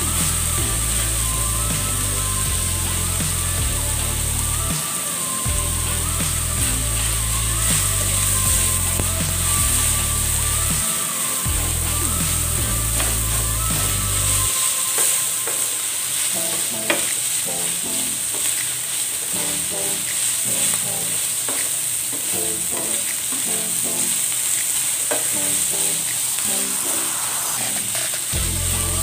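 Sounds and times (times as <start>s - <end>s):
meat sizzling in a frying pan: 0.0s - 29.0s.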